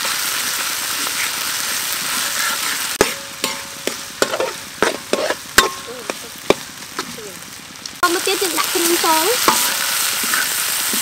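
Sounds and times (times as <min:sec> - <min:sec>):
food sizzling in oil: 0:00.0 - 0:11.0
metal spatula scraping wok: 0:02.2 - 0:07.2, 0:09.0 - 0:11.0.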